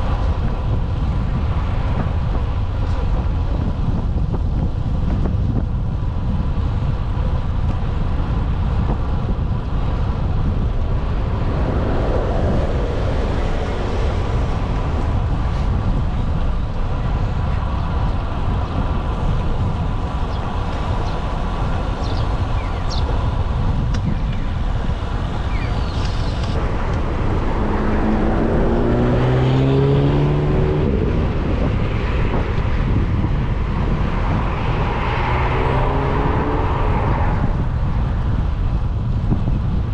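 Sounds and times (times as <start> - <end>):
road noise: 0.0 - 39.9
wind rumbling on microphone: 0.0 - 39.9
vehicle engine passing: 10.0 - 16.7, 26.4 - 33.1, 33.8 - 37.7.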